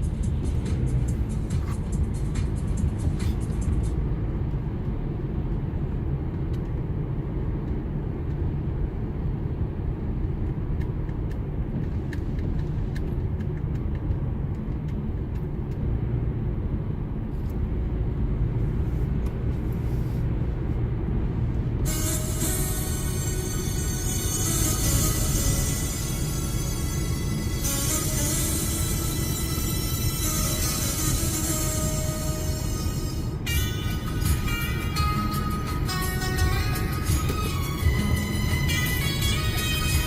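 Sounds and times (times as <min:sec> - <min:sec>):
music: 0:00.0 - 0:04.9, 0:21.8 - 0:40.0
car engine and tyre road noise: 0:00.0 - 0:40.0.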